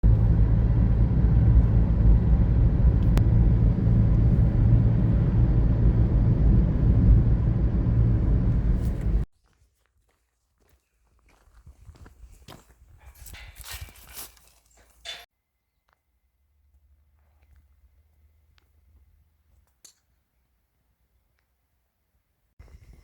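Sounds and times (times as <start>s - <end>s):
loud low rumble: 0.0s - 9.3s.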